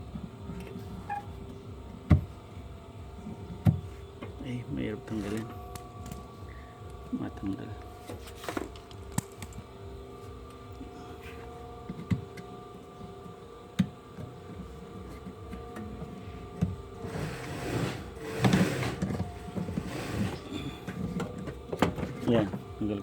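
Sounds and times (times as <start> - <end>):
steady hum: 0.0 - 23.0
drive belt scraping and rubbing: 4.5 - 6.2, 17.0 - 22.6.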